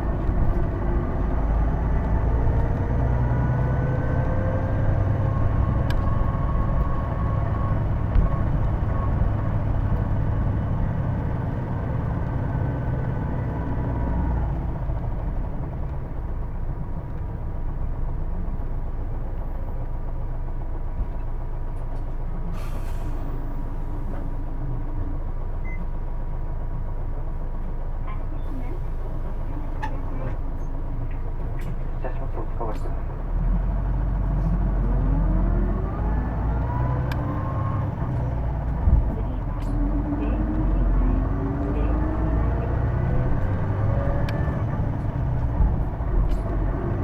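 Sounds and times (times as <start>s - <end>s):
bus engine rumble: 0.0s - 47.0s.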